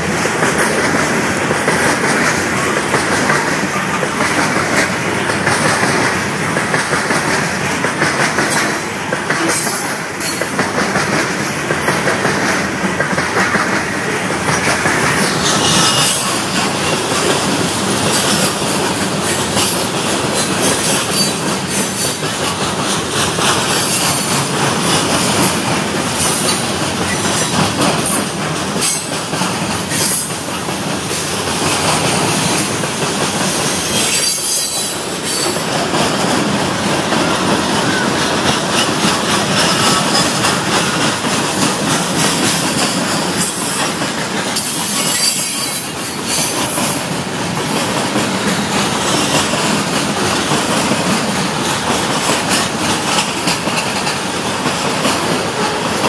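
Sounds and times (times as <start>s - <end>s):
rail clacks: 0.0s - 56.0s
train wheels on track: 0.0s - 56.0s
metallic wheel squeal: 15.2s - 16.6s, 33.9s - 35.6s, 44.6s - 46.9s.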